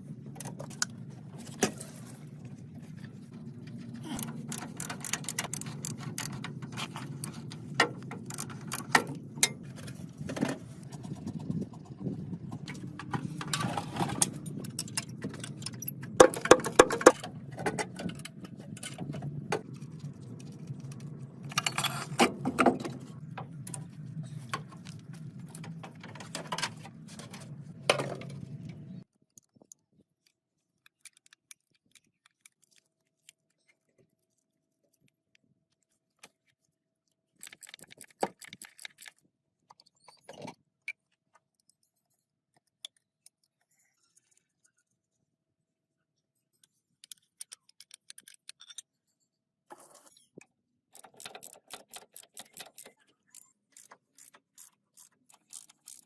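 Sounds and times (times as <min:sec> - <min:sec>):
steady low hum: 0:00.0 - 0:29.1.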